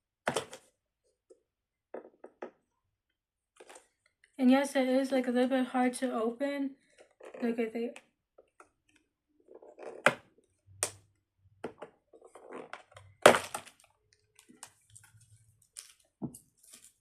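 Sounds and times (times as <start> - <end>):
plastic sharp cracks: 13.1 - 13.9.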